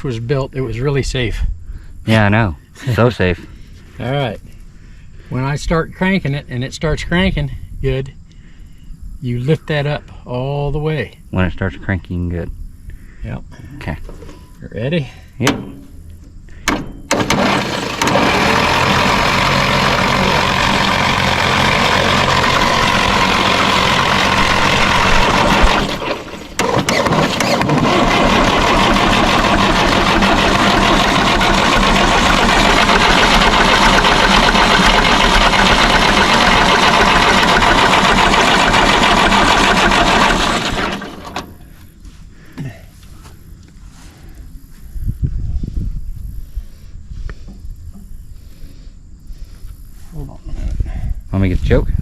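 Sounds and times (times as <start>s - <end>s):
tractor engine cranking by starter: 15.3s - 41.8s.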